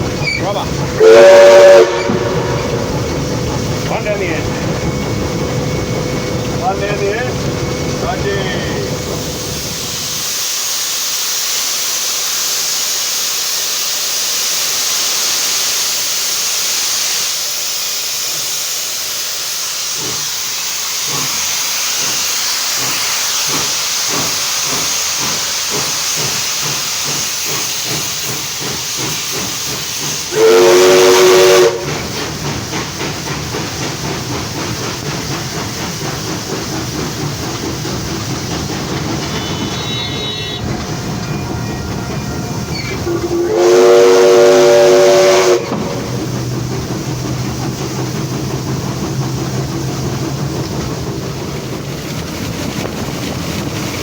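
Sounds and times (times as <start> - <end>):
locomotive exhaust beats: 0.0 - 10.4, 21.0 - 54.0
locomotive rattling: 0.0 - 10.4, 19.9 - 54.0
steam hissing: 0.0 - 54.0
steam whistle blast: 1.0 - 3.0, 30.3 - 32.0, 39.3 - 40.7, 41.3 - 46.2.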